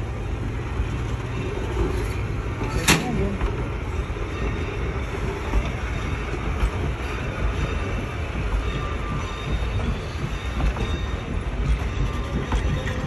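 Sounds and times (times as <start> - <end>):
steel wheels rumbling on rail: 0.0 - 13.0.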